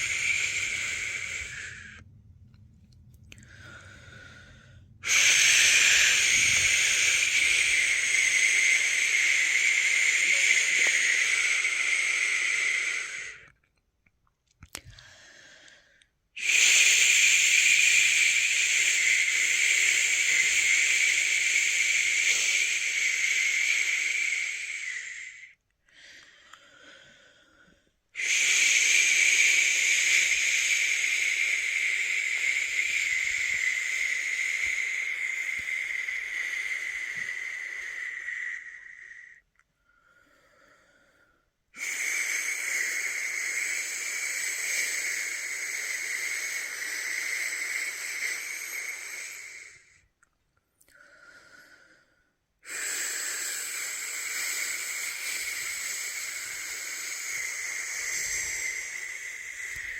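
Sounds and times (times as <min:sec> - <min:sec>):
person shushing: 0:00.0 - 0:02.0, 0:05.0 - 0:13.5, 0:28.2 - 0:39.4, 0:52.7 - 0:59.9.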